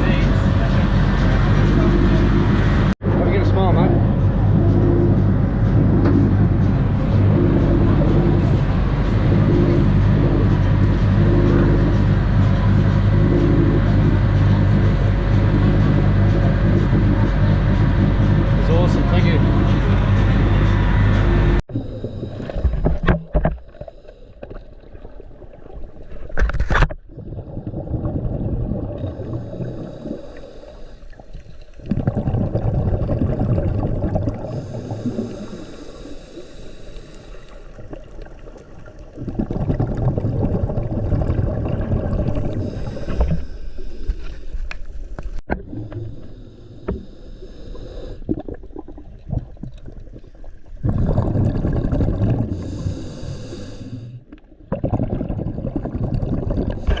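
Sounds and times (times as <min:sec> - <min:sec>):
bubbly exhalation underwater: 0:24.6 - 0:30.0, 0:31.8 - 0:34.7, 0:37.8 - 0:43.4, 0:45.5 - 0:46.3, 0:48.2 - 0:52.9, 0:54.4 - 0:57.0
hissing regulator inhalation: 0:29.0 - 0:31.8, 0:34.4 - 0:37.9, 0:42.3 - 0:45.0, 0:45.7 - 0:48.6, 0:52.3 - 0:54.4.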